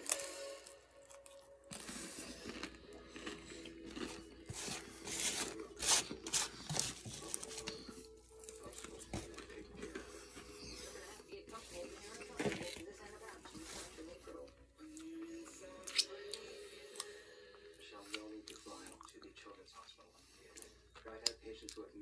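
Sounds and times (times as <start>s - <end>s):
taco shell crunching: 0.0s - 7.8s.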